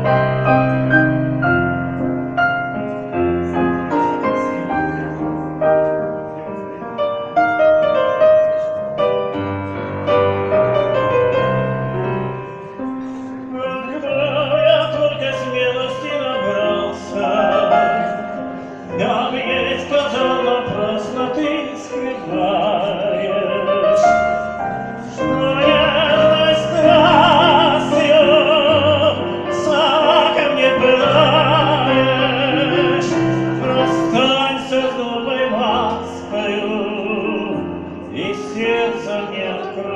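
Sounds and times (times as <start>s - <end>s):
piano accompaniment: 0.0s - 39.9s
operatic voice singing: 12.0s - 39.9s.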